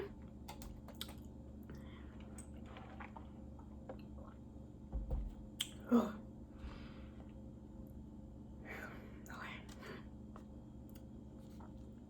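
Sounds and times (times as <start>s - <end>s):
wet chewing: 0.9s - 4.4s.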